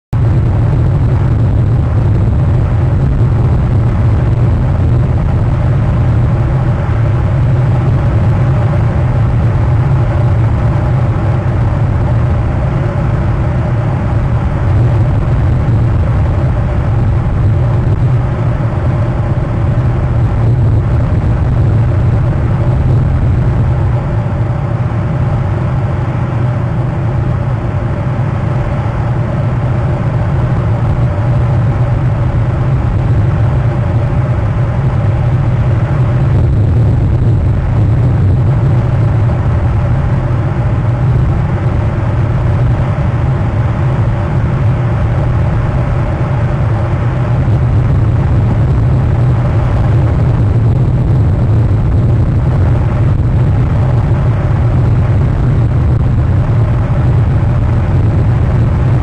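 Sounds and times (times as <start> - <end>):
engine humming steadily: 0.0 - 59.0.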